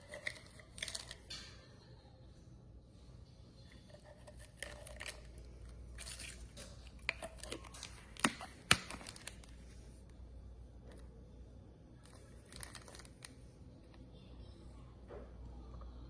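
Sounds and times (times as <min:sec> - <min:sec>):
rustling and crinkling: 0:00.0 - 0:01.5, 0:03.6 - 0:10.2, 0:12.0 - 0:13.6.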